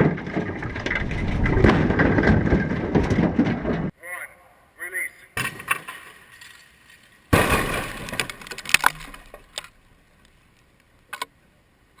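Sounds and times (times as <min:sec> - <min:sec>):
helicopter crashing into dirt: 0:00.0 - 0:03.9
structure crunching and cracking: 0:00.0 - 0:04.0, 0:07.3 - 0:10.4.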